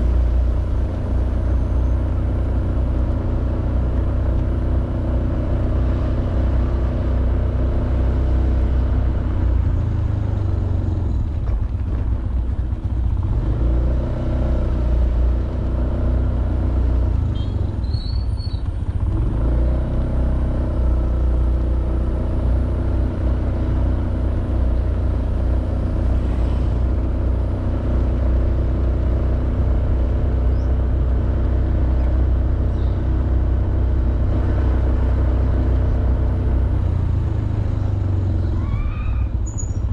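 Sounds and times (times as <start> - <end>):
scooter engine running: 9.3 - 38.6.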